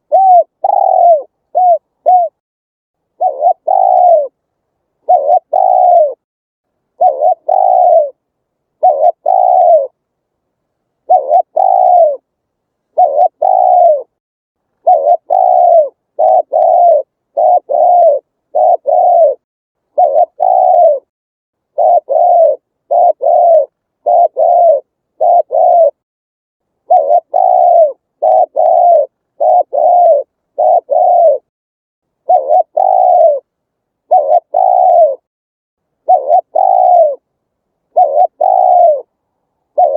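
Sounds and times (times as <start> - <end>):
dove cooing: 0.0 - 2.4, 3.1 - 4.4, 5.0 - 6.2, 7.0 - 8.2, 8.8 - 10.0, 11.0 - 12.3, 12.9 - 14.2, 14.8 - 21.1, 21.7 - 26.0, 26.8 - 31.5, 32.2 - 35.3, 36.0 - 37.3, 37.9 - 39.9.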